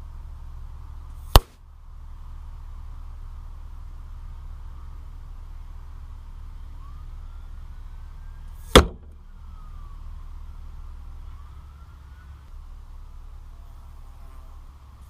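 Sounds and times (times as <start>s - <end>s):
steady low rumble: 0.0s - 15.0s
air rifle shot crack: 1.2s - 1.6s, 8.7s - 9.2s.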